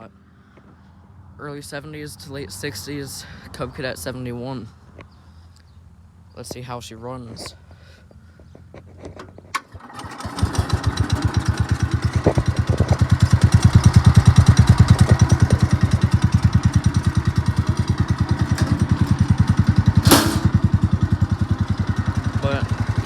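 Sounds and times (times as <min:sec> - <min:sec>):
tractor engine starting and running: 0:08.9 - 0:23.0.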